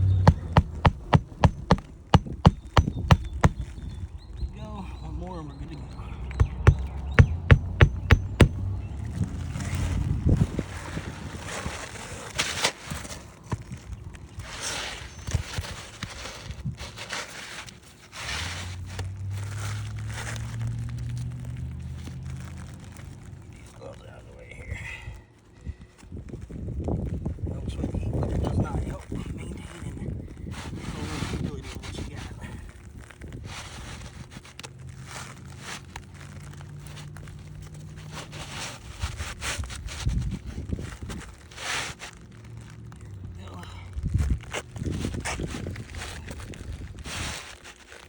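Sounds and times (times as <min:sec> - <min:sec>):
dull knocks and scuffing: 0:00.0 - 0:03.8, 0:06.3 - 0:08.8
roofing shingles scraping: 0:00.0 - 0:04.0, 0:06.3 - 0:23.9, 0:30.4 - 0:43.3, 0:44.0 - 0:48.0.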